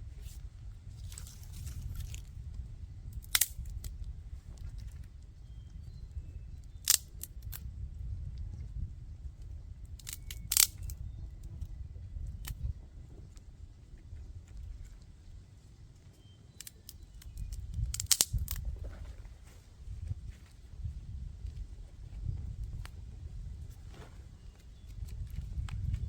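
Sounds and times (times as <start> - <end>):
low steady rumble: 0.0 - 16.0
sharp clicks: 3.2 - 3.7, 6.8 - 7.6, 10.0 - 11.0, 16.6 - 18.6.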